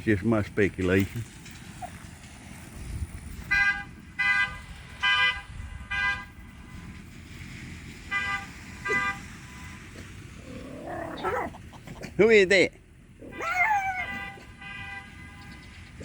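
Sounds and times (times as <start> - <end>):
vehicle horn honking: 3.5 - 7.0, 8.1 - 9.9, 14.0 - 15.8.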